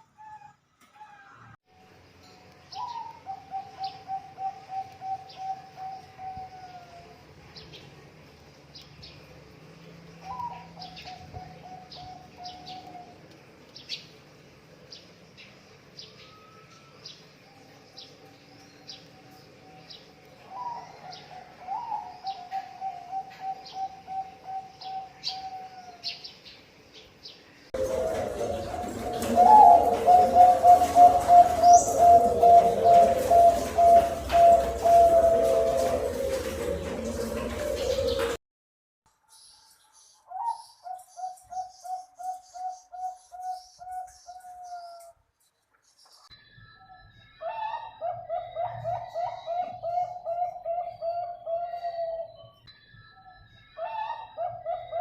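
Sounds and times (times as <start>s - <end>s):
small birds chirping: 1.9s - 38.4s
dove cooing: 2.7s - 7.2s, 10.2s - 13.2s, 20.5s - 26.1s, 27.8s - 38.4s, 47.4s - 52.5s, 53.8s - 55.0s.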